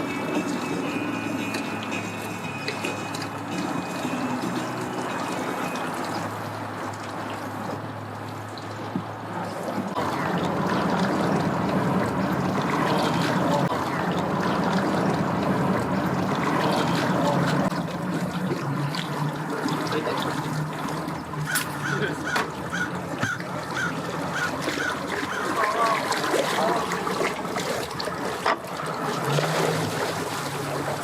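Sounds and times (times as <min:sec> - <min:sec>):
water trickling and splashing: 0:00.0 - 0:31.0.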